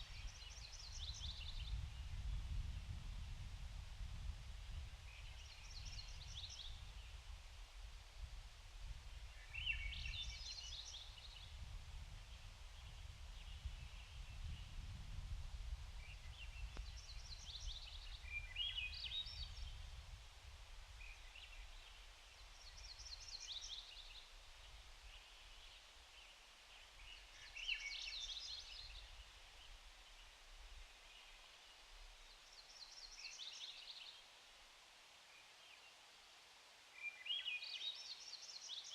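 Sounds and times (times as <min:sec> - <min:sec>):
songbird singing: 0:00.0 - 0:03.0, 0:04.6 - 0:07.3, 0:09.1 - 0:15.3, 0:15.9 - 0:20.1, 0:20.9 - 0:34.4, 0:36.9 - 0:38.9
low rumble of water or wind: 0:00.0 - 0:23.3.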